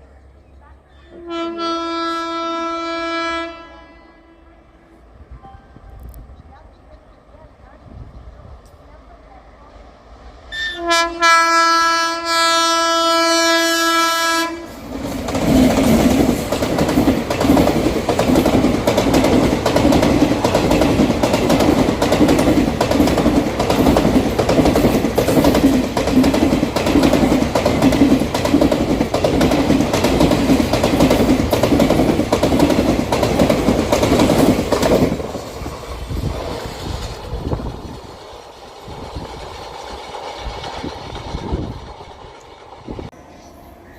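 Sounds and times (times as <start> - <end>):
train horn blast: 1.1 - 6.0, 10.5 - 14.8
train wheels clattering over rails: 14.7 - 43.2.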